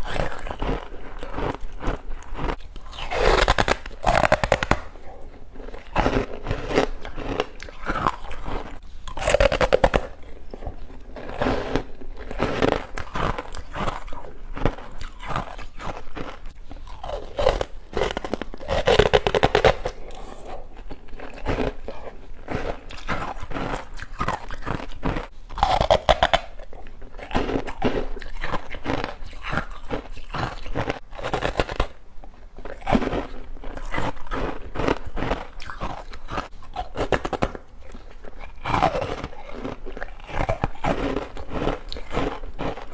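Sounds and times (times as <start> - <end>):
crisp bites: 0.0 - 5.0, 5.6 - 32.0
crackly chewing: 0.0 - 42.9.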